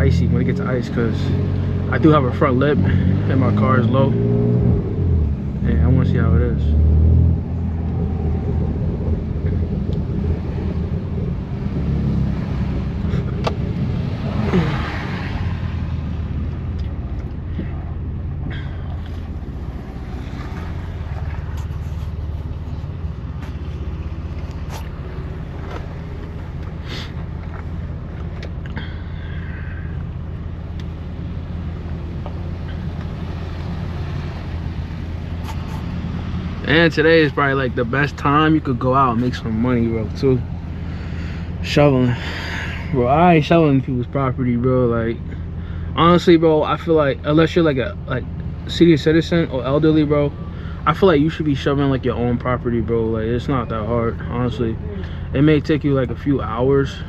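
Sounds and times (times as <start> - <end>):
car engine low drone: 0.0 - 57.0
whoosh of road noise: 1.2 - 43.6.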